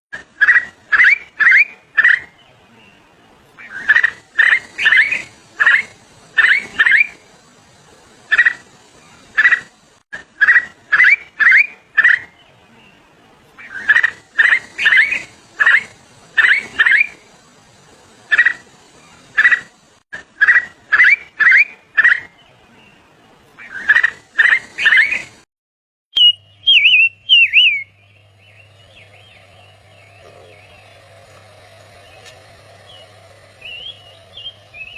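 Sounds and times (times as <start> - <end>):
bird calling sharp notes: 0.4 - 9.8, 10.4 - 19.7, 20.4 - 25.4, 26.2 - 34.9
faint wavering whistle: 0.5 - 7.6, 13.6 - 17.5, 26.2 - 34.9.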